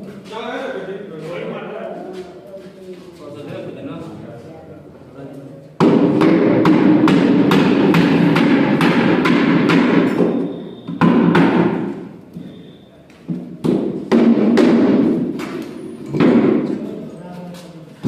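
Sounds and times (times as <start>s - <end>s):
dense noisy background: 0.0s - 18.0s
repeated knocks: 5.8s - 12.5s, 13.2s - 16.9s.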